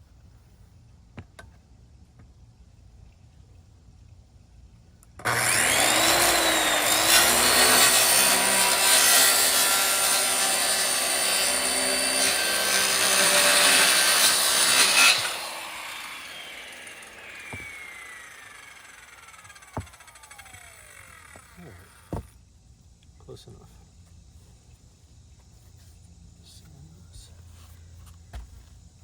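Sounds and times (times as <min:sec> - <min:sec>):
power tool motor whining: 0:05.2 - 0:22.4.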